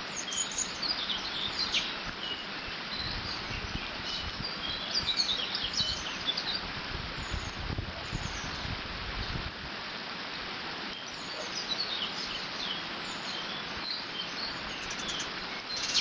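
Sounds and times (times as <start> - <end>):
small birds chirping: 0.0 - 8.8, 10.9 - 16.0
wind gusts rumbling: 6.6 - 9.8.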